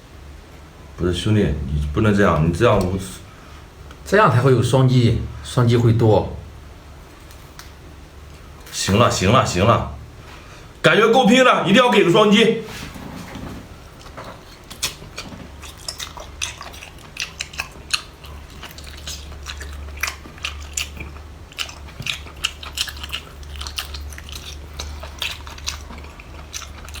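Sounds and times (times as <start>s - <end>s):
steady low hum: 0.0s - 27.0s
person chewing crunchy food: 13.7s - 27.0s.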